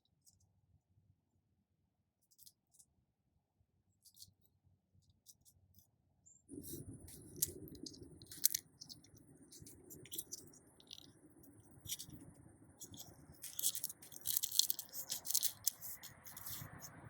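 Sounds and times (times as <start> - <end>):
soft rustle of plants: 6.5 - 17.0
dry bean pods crackling: 6.6 - 17.0.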